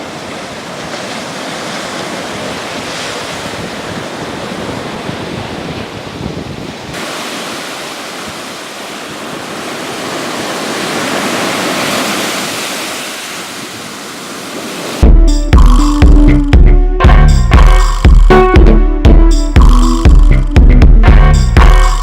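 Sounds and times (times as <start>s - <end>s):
ocean waves breaking: 0.0s - 18.7s.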